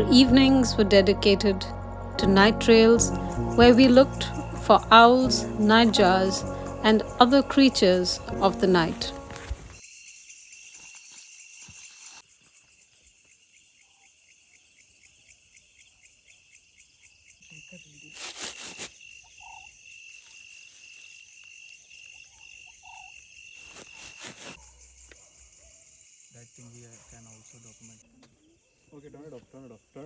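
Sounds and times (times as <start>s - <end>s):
insects chirring in a trill: 9.7s - 30.0s
frogs calling: 19.1s - 24.2s.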